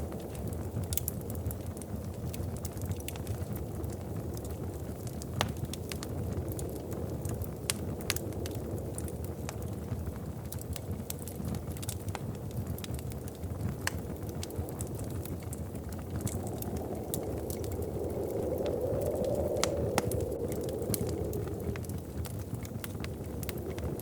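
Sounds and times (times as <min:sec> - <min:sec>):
wood fire crackling: 0:00.0 - 0:24.0
sharp pops of fire: 0:10.5 - 0:24.0
wind gust: 0:13.8 - 0:24.0.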